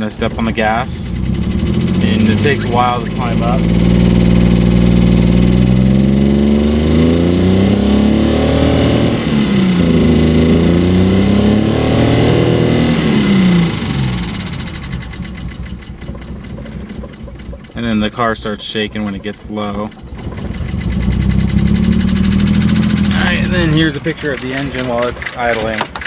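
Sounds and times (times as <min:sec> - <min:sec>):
car engine revving: 0:00.2 - 0:15.2.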